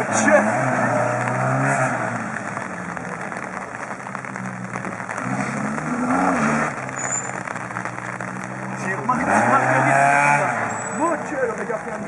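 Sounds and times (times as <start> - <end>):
rally car engine accelerating: 0.0 - 2.7, 7.8 - 11.3.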